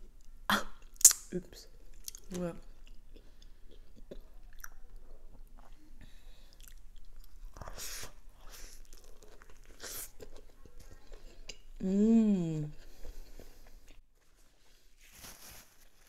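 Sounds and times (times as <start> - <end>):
wet mouth clicks: 0.8 - 1.4.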